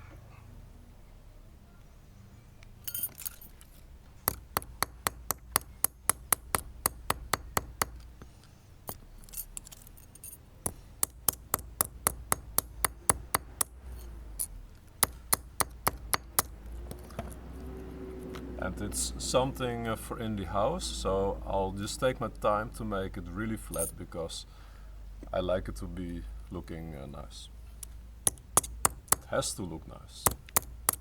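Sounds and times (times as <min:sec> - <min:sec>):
hammer clinking on metal strap: 0:02.8 - 0:06.6, 0:07.8 - 0:13.2, 0:23.7 - 0:24.0.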